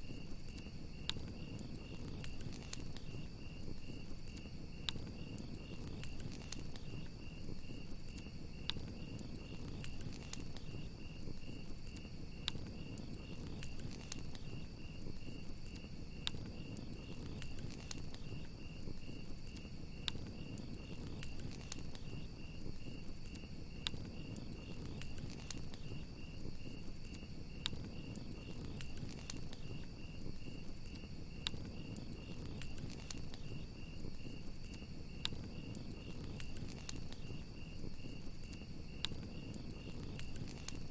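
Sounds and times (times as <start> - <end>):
burning wood popping: 0.0 - 40.9
crickets chirping: 0.0 - 40.9
flames rushing: 0.0 - 40.9.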